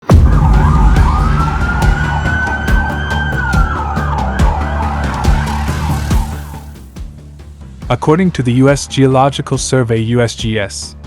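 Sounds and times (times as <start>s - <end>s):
siren yelp: 0.0s - 6.9s
low drone: 0.0s - 7.0s
siren wail: 0.0s - 7.0s.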